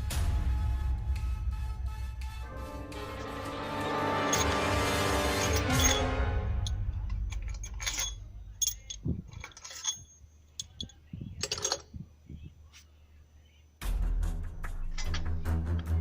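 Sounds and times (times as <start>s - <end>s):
background music: 0.0s - 8.8s, 13.8s - 16.0s
metallic clinks of tools: 4.2s - 12.0s, 14.8s - 15.5s.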